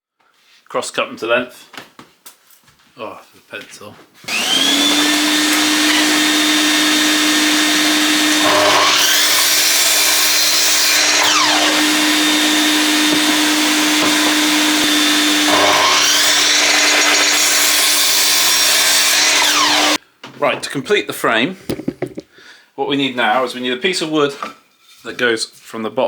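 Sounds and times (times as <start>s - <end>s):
saw cutting through wood: 4.2s - 20.0s
electric saw motor whine: 4.3s - 20.0s.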